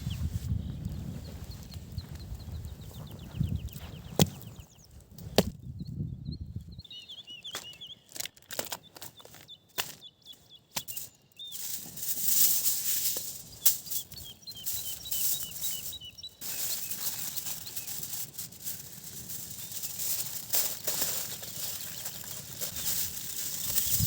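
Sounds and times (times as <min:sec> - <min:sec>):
small bird chirping: 0:00.0 - 0:24.0
rustling hiss: 0:10.9 - 0:24.0.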